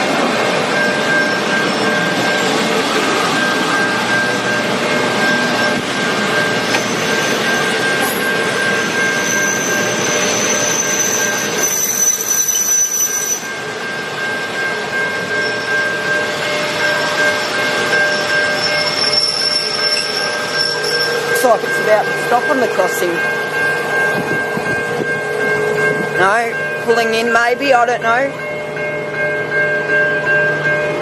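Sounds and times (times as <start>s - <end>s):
train engines rumbling: 0.0s - 31.0s
wheel squeal on rails: 0.7s - 22.4s.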